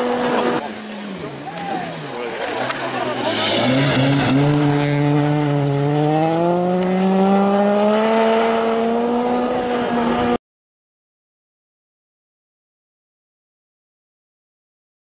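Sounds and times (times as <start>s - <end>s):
rally car engine revving: 0.0s - 10.4s.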